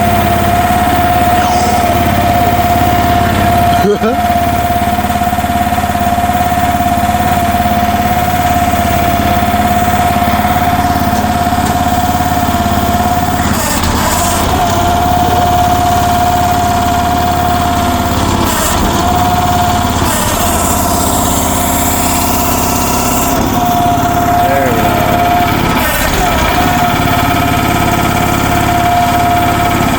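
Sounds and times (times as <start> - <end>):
excavator engine running: 0.0 - 29.9.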